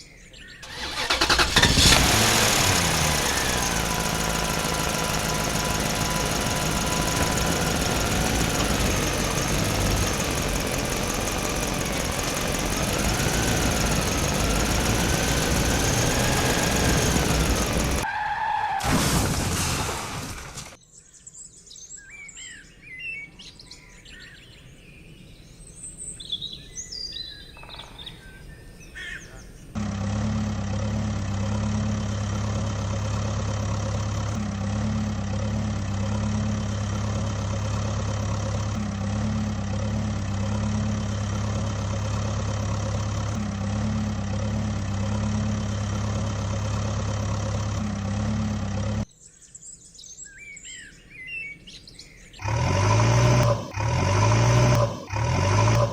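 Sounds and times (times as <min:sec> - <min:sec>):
birds chirping: 0:00.0 - 0:18.0, 0:20.8 - 0:29.8
low engine hum: 0:00.7 - 0:18.0, 0:29.8 - 0:49.1, 0:52.4 - 0:55.9.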